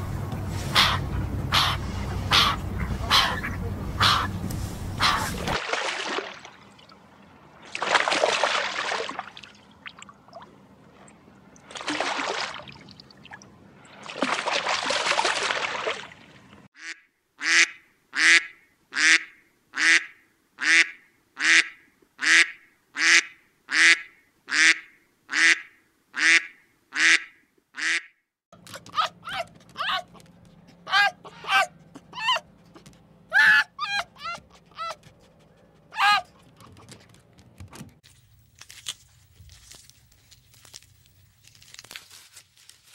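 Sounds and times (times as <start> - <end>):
water splashing: 0.0 - 16.7
duck calls: 0.7 - 4.4, 5.0 - 5.6, 16.8 - 28.1, 28.7 - 35.0.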